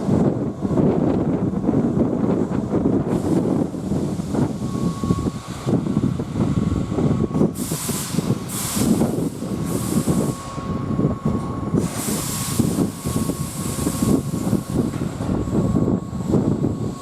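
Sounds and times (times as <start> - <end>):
electric train rumbling: 0.0 - 17.0
short bursts of high hiss: 7.5 - 10.8, 11.8 - 14.9.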